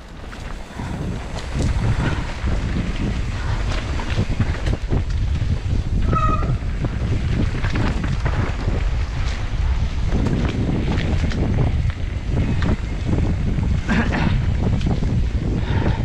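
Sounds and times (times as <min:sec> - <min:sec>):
bike rattling and knocking: 0:00.0 - 0:16.0
wind buffeting microphone: 0:00.0 - 0:16.0
high squeal: 0:06.0 - 0:06.6.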